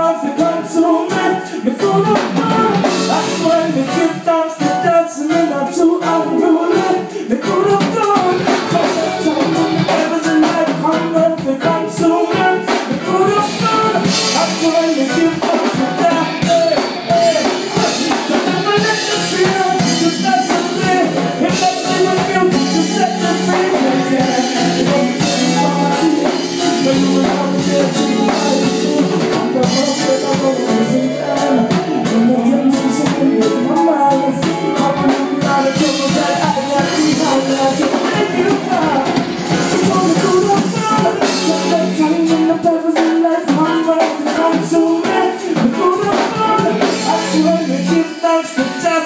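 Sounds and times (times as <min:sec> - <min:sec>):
bass: 0:00.0 - 0:49.0
drum kit: 0:00.0 - 0:49.0
guitar: 0:00.0 - 0:49.0.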